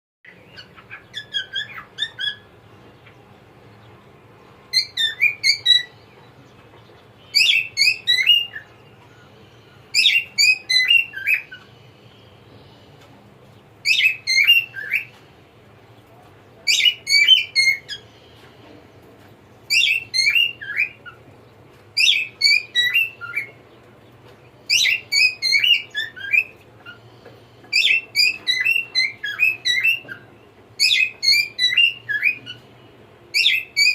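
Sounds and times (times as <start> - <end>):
cockatiel whistling: 0.6 - 2.5, 4.8 - 5.9, 7.3 - 8.7, 10.0 - 11.7, 13.8 - 15.1, 19.7 - 21.2, 22.0 - 23.6, 24.7 - 27.0, 27.7 - 32.6, 33.4 - 33.9.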